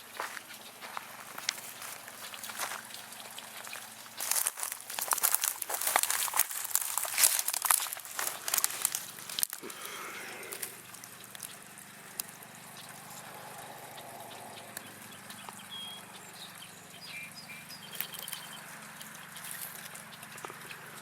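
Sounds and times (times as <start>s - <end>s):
rustling of leaves underfoot: 0.0s - 11.7s
faint steady hum: 0.0s - 21.0s
high bird chirps: 13.9s - 18.7s.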